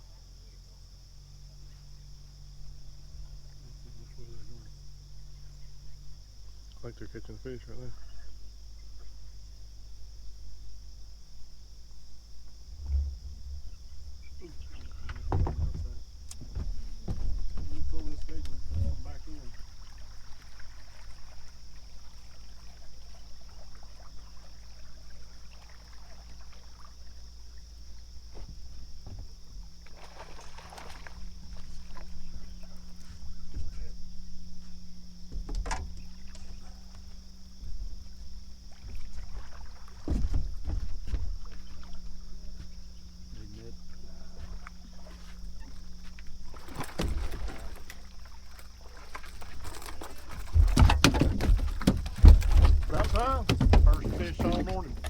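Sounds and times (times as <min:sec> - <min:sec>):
steady low rumble: 0:00.0 - 0:19.8
steady low hum: 0:00.0 - 0:55.0
knocks and clatter on boat: 0:12.4 - 0:55.0
heavy low rumble: 0:12.5 - 0:19.6
water splashing and trickling: 0:12.5 - 0:55.0.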